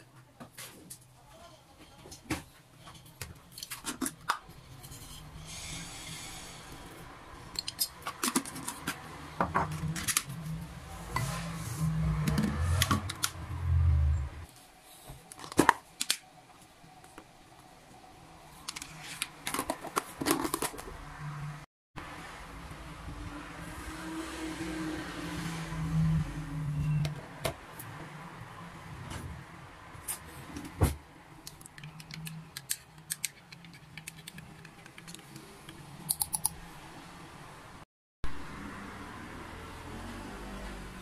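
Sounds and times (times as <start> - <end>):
hiss: 5.4 - 6.9.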